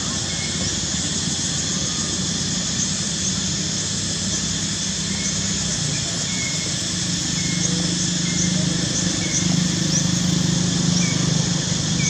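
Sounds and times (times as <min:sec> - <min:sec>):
constant hiss: 0:00.0 - 0:12.0
faint chirps: 0:00.0 - 0:12.0
low engine hum: 0:00.0 - 0:12.0.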